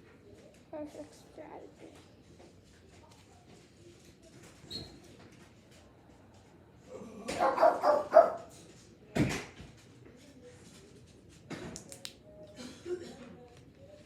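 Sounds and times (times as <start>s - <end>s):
dog barking: 7.3s - 8.5s.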